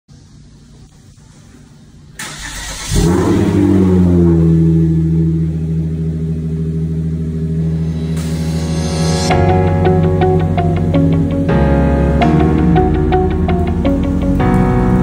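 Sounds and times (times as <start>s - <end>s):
car starter cranking: 2.2s - 4.0s.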